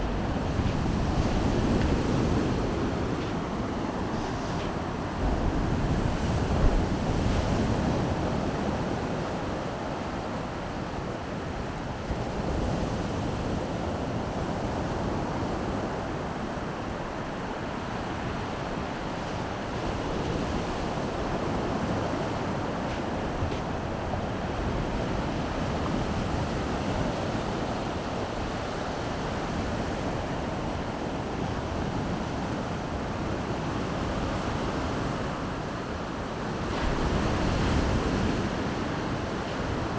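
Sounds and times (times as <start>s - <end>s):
wind rumbling on microphone: 0.0s - 9.2s
waves washing onto shore: 0.0s - 39.9s.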